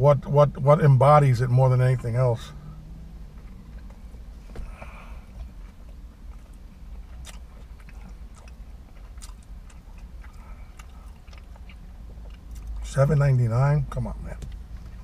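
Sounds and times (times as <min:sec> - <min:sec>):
low hum: 0:00.0 - 0:15.0
man chewing: 0:03.4 - 0:12.8.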